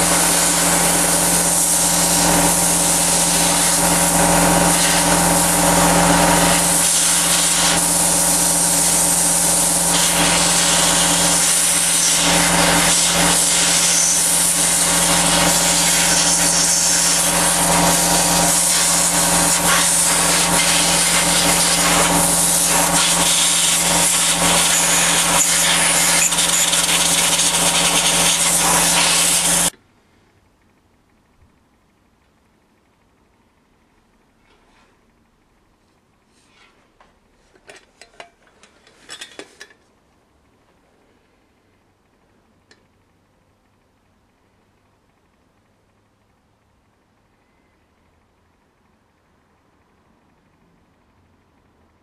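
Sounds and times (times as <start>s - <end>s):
electric power tool running: 0.0s - 29.7s.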